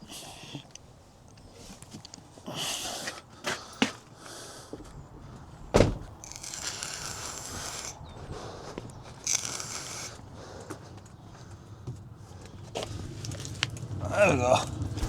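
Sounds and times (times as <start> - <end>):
loud thump: 5.8 - 6.1.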